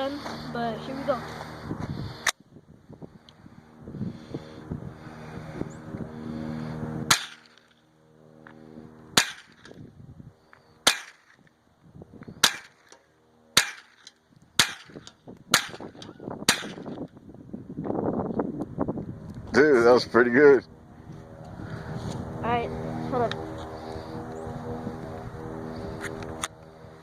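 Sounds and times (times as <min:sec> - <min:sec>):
steady hum: 0:00.0 - 0:27.0
rifle shots: 0:07.1 - 0:07.6, 0:09.2 - 0:09.7, 0:10.8 - 0:11.4, 0:12.4 - 0:12.9, 0:13.6 - 0:17.0.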